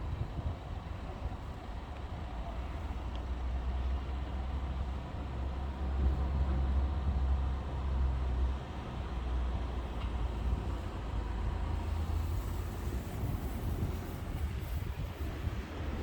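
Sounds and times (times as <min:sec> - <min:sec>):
road vehicles idling and moving: 0:00.0 - 0:16.0.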